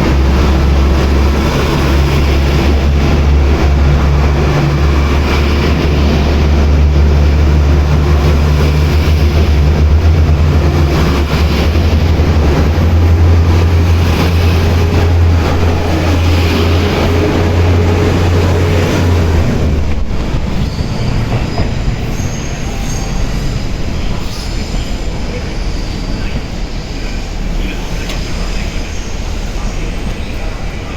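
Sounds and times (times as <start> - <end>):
diesel engine drone: 0.0 - 20.3
train wheel and rail noise: 0.0 - 30.9
faint wheel squeal: 24.2 - 30.6.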